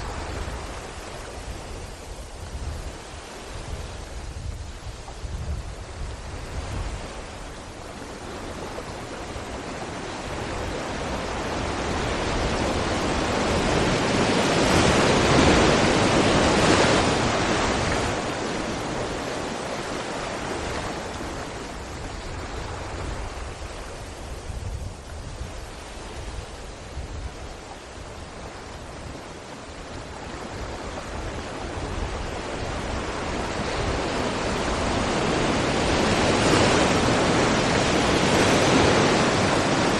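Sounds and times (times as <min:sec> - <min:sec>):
waves breaking against rocks: 0:25.2 - 0:39.9.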